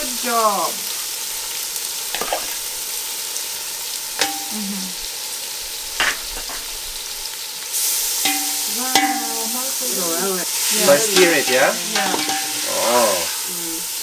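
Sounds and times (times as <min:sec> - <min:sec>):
vegetables sizzling in a pot: 0:00.0 - 0:14.0
metal spoon knocking against pot: 0:04.2 - 0:04.5, 0:08.3 - 0:09.4.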